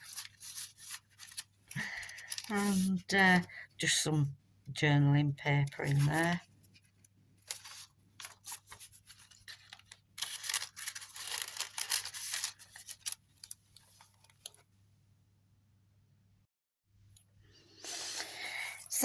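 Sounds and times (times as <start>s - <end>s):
paper pages rustling: 0.0s - 3.5s, 5.6s - 14.7s.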